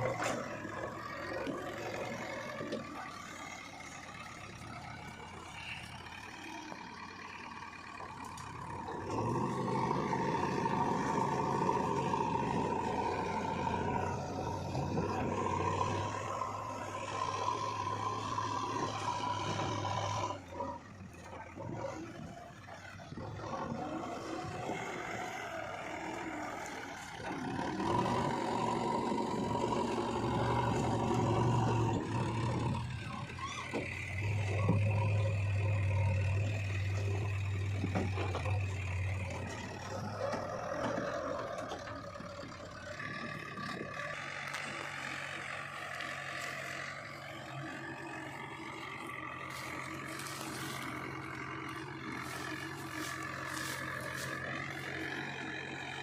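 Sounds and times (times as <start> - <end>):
diesel machinery engines revving: 0.0 - 56.0.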